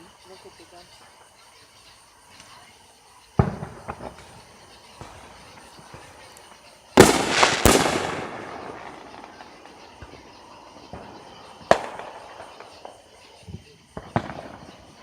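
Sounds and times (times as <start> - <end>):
firework crackling: 0.0 - 15.0
faint firework pops: 3.4 - 15.0
firework bangs: 3.4 - 15.0.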